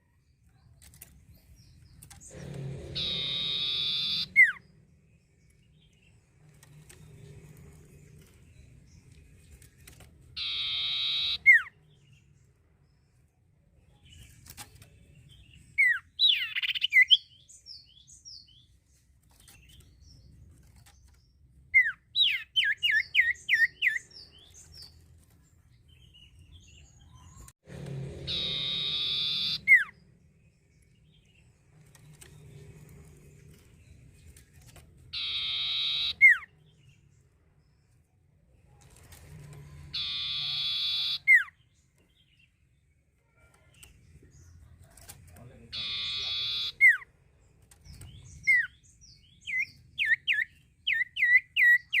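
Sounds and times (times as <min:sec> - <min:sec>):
bird whistling and calling: 0:03.0 - 0:04.6, 0:10.4 - 0:11.7, 0:15.8 - 0:17.3, 0:28.3 - 0:29.9, 0:35.2 - 0:36.5, 0:40.0 - 0:41.6, 0:45.8 - 0:47.0, 0:49.5 - 0:52.0.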